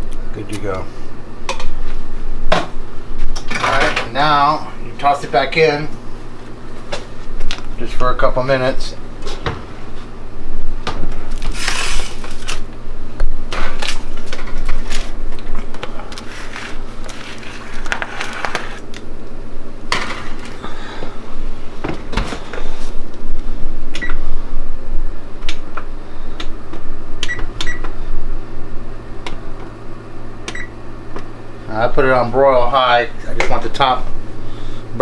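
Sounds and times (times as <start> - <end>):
steady hum: 0.0 - 35.0
oven buttons clicking and beeping: 23.9 - 24.3, 27.2 - 28.0, 30.4 - 31.3.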